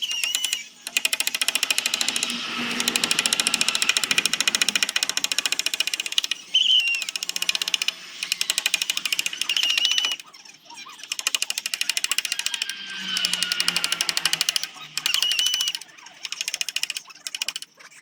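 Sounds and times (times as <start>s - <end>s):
power sander rattling and whining: 0.8s - 6.4s.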